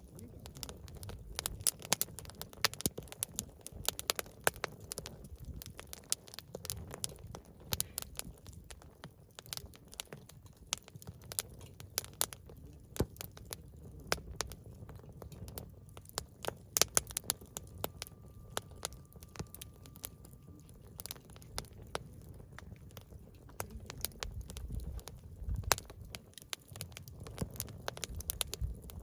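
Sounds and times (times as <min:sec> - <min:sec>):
campfire wood crackling: 0:00.0 - 0:29.0
low rumble of burning fire: 0:00.0 - 0:29.0.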